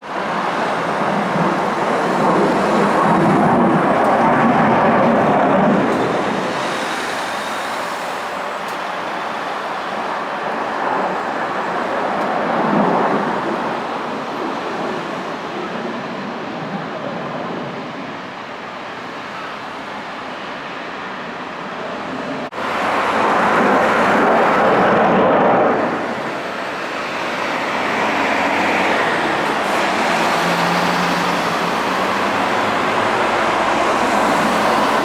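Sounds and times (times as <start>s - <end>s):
fighter jet engines roaring: 0.0s - 35.0s.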